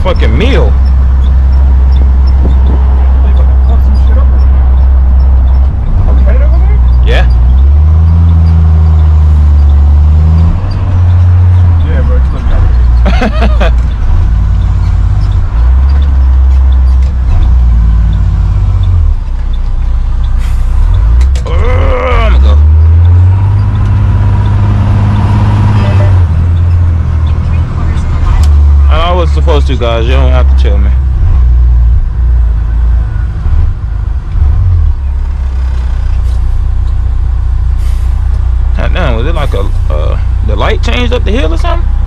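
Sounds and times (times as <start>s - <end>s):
truck engine drone from inside cab: 0.0s - 42.0s.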